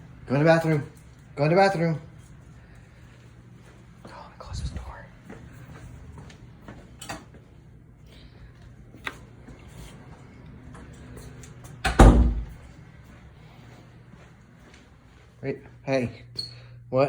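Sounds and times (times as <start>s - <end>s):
door shutting with a thud: 11.8s - 12.6s.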